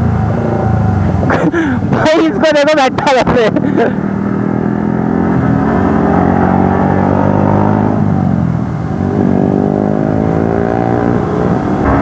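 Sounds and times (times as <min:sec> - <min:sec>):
motorcycle engine revving: 0:03.5 - 0:12.0.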